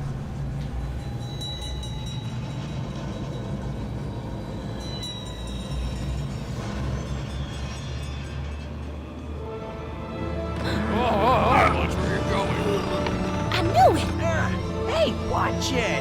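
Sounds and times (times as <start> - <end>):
thin metallic squeals: 1.2 - 9.1.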